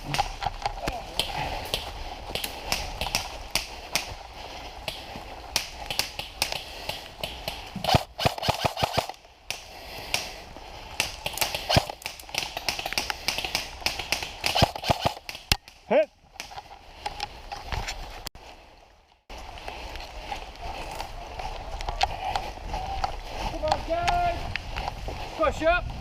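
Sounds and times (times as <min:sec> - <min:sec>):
airsoft guns firing: 0:05.5 - 0:10.3, 0:11.0 - 0:15.8.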